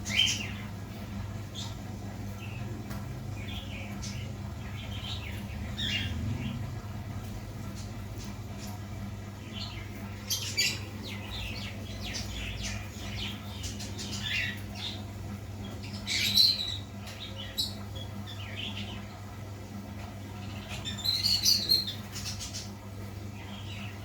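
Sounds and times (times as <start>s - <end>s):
baby parrot chirping and squawking: 10.2s - 14.6s.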